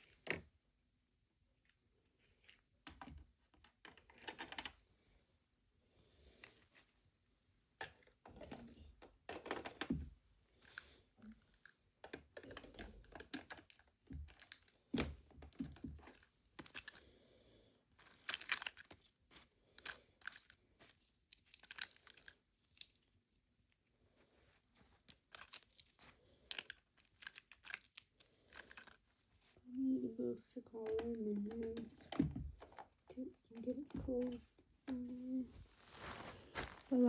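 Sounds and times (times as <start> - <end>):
plastic miniatures clicking and rustling: 2.4 - 4.8, 7.8 - 17.2, 17.8 - 23.2, 24.6 - 37.0.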